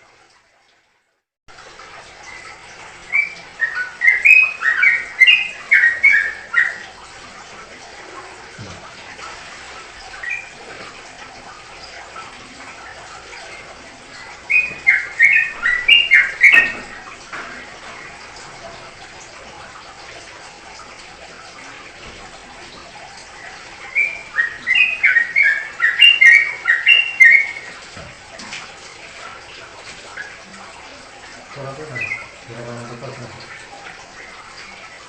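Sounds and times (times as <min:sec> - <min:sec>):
songbird chirping: 0:03.1 - 0:06.8, 0:14.5 - 0:17.0, 0:23.4 - 0:27.7, 0:31.6 - 0:32.8.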